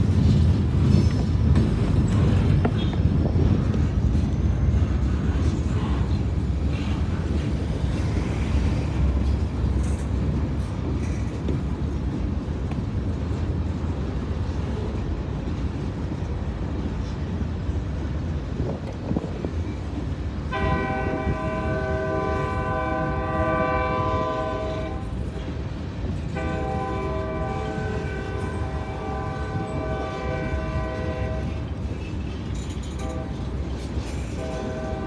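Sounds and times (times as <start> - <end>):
train wheels rumbling: 0.0 - 35.0
locomotive horn blast: 20.5 - 25.2, 26.4 - 31.6, 33.0 - 33.6, 34.2 - 35.0.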